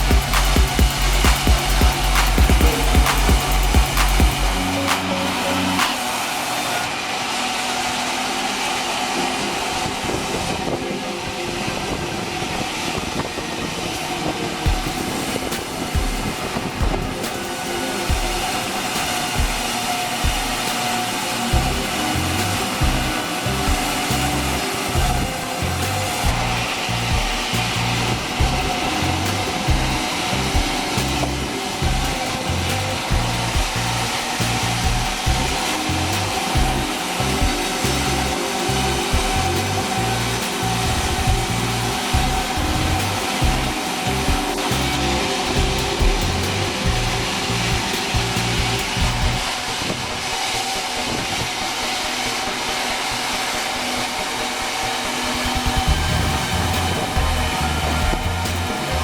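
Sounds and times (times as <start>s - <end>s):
background music with pulsing bass: 0.0s - 59.0s
faint steady whine: 0.0s - 59.0s
sawmill saw cutting timber: 0.0s - 59.0s.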